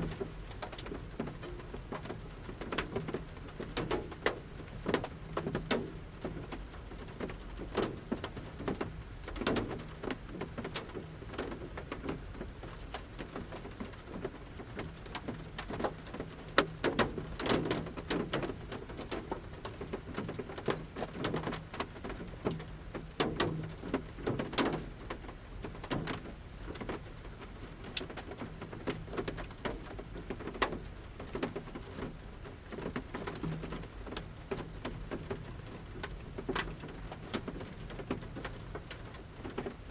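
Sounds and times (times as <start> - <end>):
light rain hiss: 0.0 - 39.9
raindrops tapping on van roof: 0.0 - 39.9.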